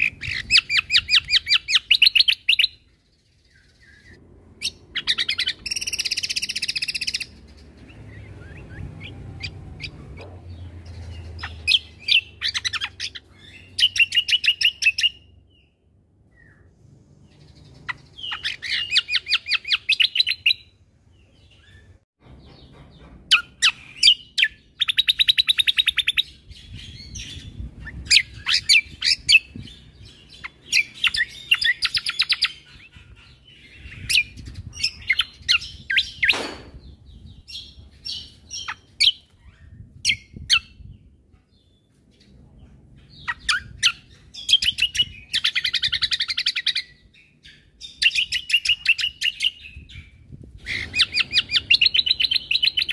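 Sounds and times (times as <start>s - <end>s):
bird singing rapid chattering trills: 0.0s - 15.3s, 23.3s - 41.1s, 43.1s - 52.9s.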